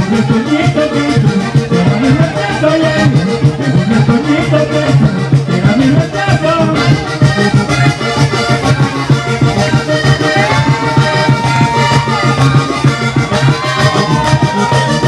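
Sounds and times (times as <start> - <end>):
button accordion: 0.0 - 15.0
hand drum: 8.7 - 15.0.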